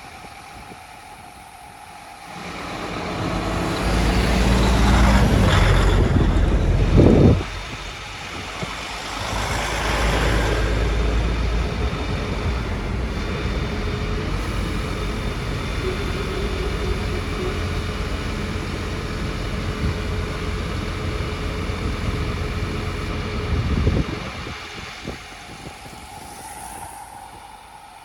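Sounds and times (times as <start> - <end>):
truck diesel engine running: 2.3 - 26.8
hiss: 7.4 - 28.0.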